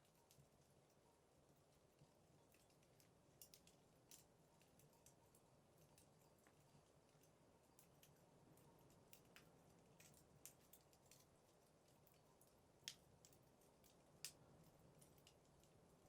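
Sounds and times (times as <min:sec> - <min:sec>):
wood crackling in fireplace: 0:00.0 - 0:16.0.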